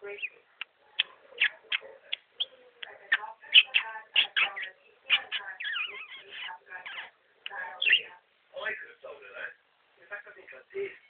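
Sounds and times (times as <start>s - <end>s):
budgerigar chattering: 0.0s - 8.1s.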